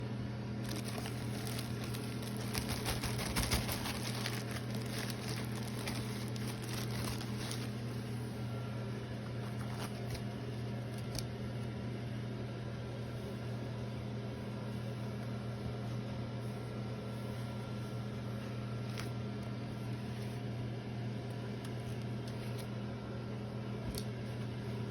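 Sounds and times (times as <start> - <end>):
low electrical hum: 0.0 - 24.9
packaging rustling: 0.6 - 8.1, 9.3 - 11.2.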